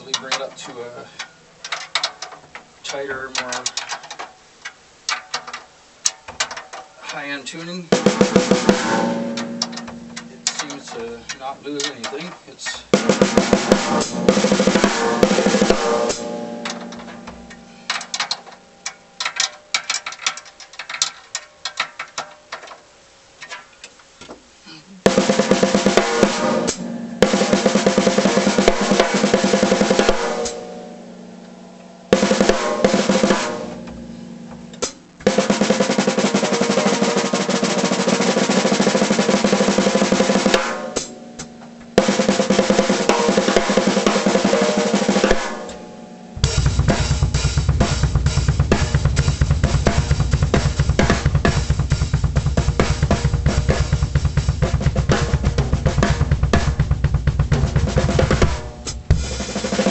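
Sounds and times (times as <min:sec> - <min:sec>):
snare drum played with sticks: 0:06.2 - 0:21.0, 0:25.1 - 0:30.7, 0:32.1 - 0:45.8, 0:46.4 - 0:59.9.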